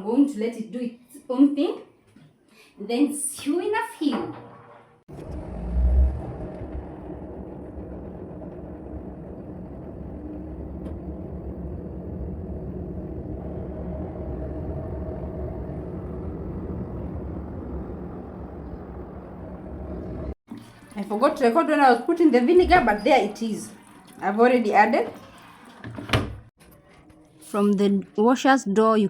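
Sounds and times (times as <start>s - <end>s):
low thump: 5.1s - 13.6s, 22.6s - 23.1s
washing machine drum rumbling: 5.1s - 20.4s, 21.0s - 26.5s.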